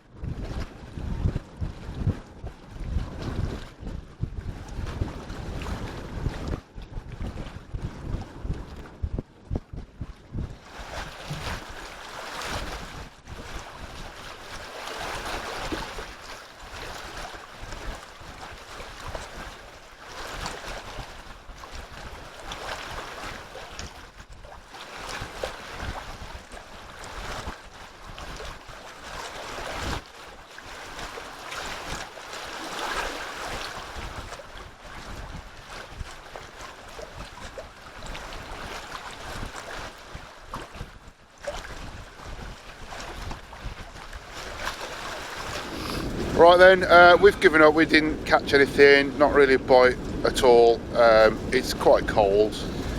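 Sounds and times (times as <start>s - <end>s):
wind buffeting microphone: 0.0s - 30.0s, 32.8s - 52.9s
wind rushing: 45.2s - 52.9s.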